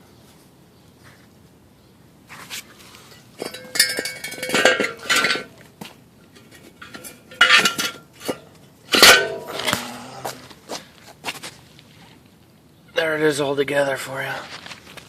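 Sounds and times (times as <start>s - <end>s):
metal engine parts clanking: 3.1s - 5.7s, 6.3s - 10.0s.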